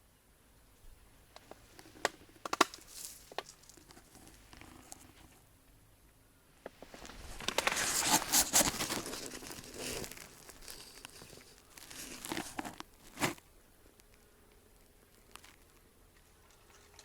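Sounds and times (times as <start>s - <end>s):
dry material rustling and crinkling: 1.3s - 5.4s, 6.7s - 13.5s.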